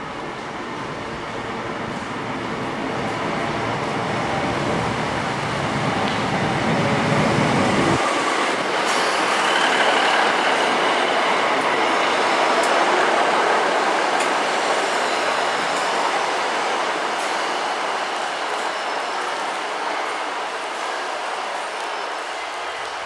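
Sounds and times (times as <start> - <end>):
high wheel squeal: 8.1 - 11.1.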